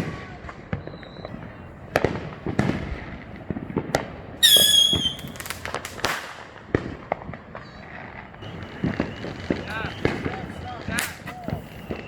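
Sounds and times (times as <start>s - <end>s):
firework crackles: 0.0s - 12.0s
fireworks bangs: 0.0s - 12.0s
shrill whistling firework: 0.2s - 1.3s, 4.4s - 6.3s, 7.6s - 12.0s.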